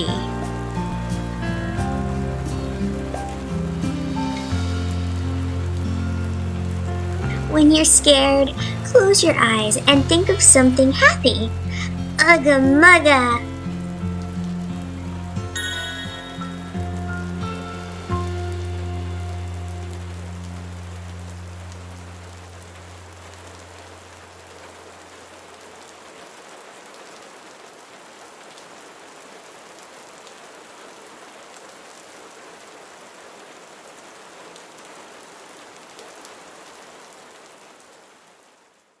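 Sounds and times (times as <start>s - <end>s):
low held background music notes: 0.0s - 24.4s
steady rain falling: 0.0s - 39.0s.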